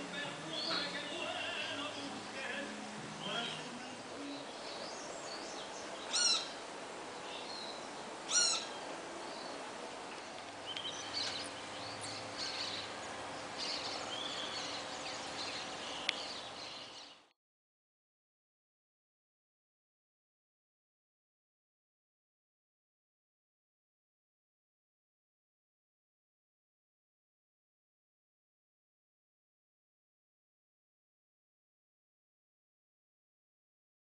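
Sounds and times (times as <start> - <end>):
loud short bird calls: 6.0 - 6.6, 8.3 - 8.9.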